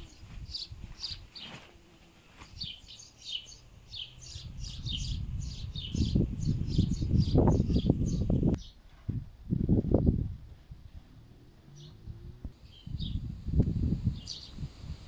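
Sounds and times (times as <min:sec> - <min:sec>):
small birds chirping: 0:00.0 - 0:01.6, 0:02.3 - 0:08.8, 0:12.6 - 0:13.3, 0:14.1 - 0:14.7.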